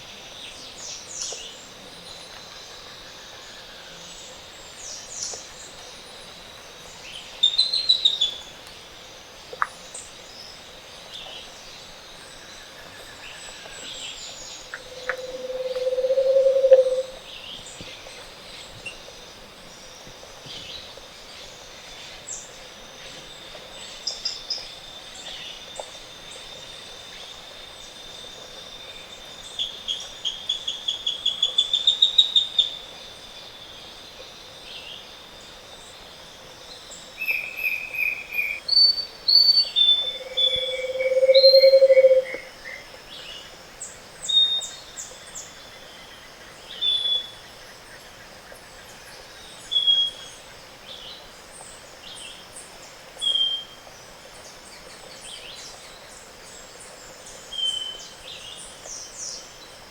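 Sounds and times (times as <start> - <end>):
tropical birds singing: 9.9 - 24.5, 36.7 - 59.7
bird call with rising notes: 15.0 - 17.2, 37.2 - 42.4.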